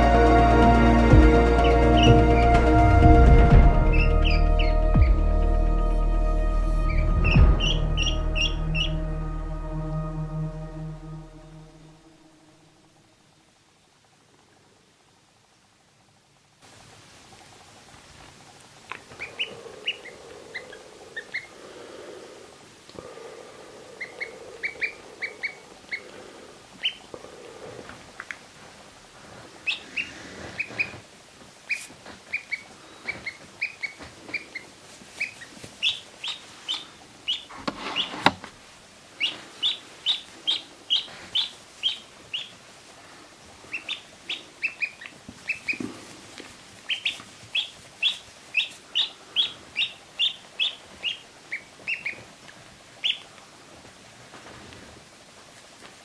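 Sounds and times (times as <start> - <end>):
ducklings peeping: 1.4 - 2.8, 3.4 - 5.3, 6.8 - 9.2, 18.9 - 21.8, 23.9 - 27.2, 29.4 - 31.0, 31.6 - 38.4, 39.2 - 53.4
rustling: 24.0 - 56.0.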